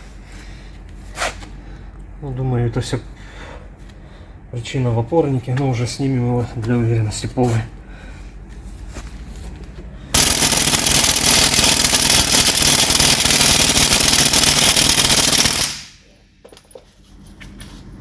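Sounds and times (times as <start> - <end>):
impact wrench rattling: 10.2 - 16.1.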